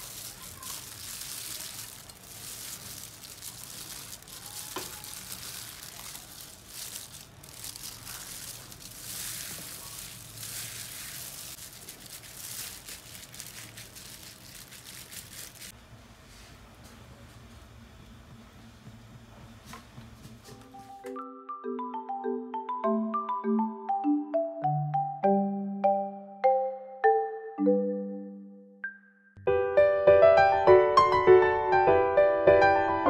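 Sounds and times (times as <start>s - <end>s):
food sizzling in a pan: 0.0s - 15.7s.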